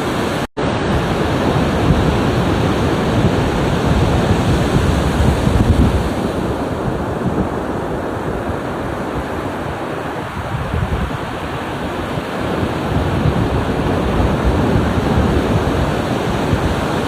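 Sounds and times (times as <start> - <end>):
ocean waves breaking on shore: 0.0 - 17.0.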